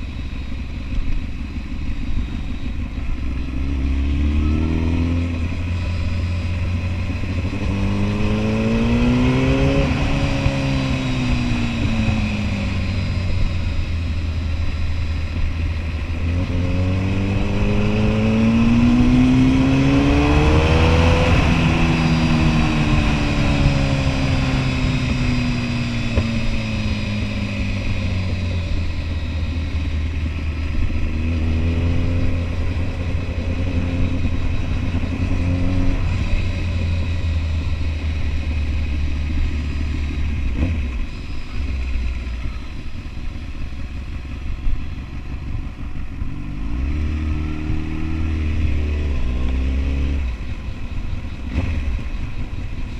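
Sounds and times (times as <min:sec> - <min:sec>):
low wind rumble: 0:00.0 - 0:52.9
motorcycle engine accelerating: 0:00.0 - 0:52.9.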